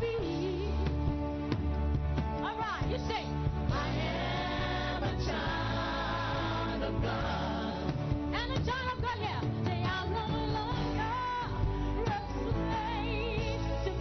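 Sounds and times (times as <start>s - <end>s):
steady bass: 0.0s - 14.0s
singing voices with vibrato: 3.7s - 14.0s.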